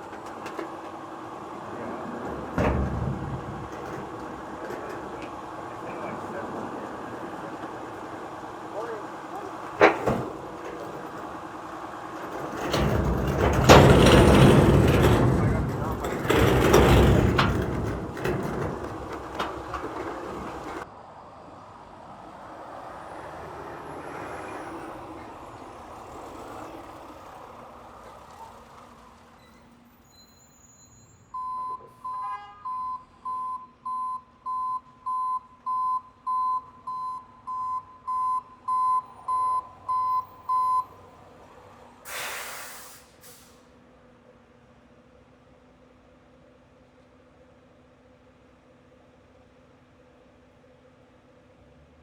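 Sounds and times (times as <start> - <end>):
truck running: 0.0 - 31.2, 38.6 - 44.2
reversing alarm beeping: 31.3 - 40.9.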